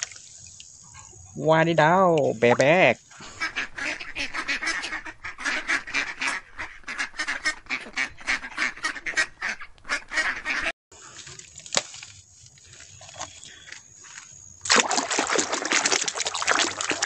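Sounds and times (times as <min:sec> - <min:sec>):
faint trickling water: 0:00.0 - 0:01.4
ducks quacking: 0:02.5 - 0:10.7.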